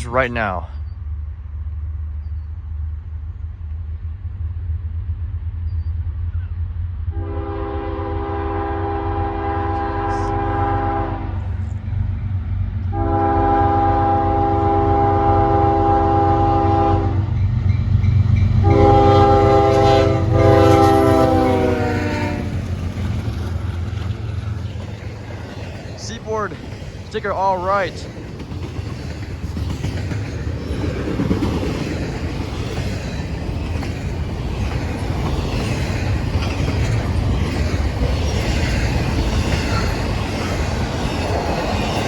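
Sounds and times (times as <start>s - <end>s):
low rumble of train: 0.0s - 42.0s
locomotive horn blasts: 7.1s - 11.4s, 12.9s - 17.2s, 18.6s - 22.6s.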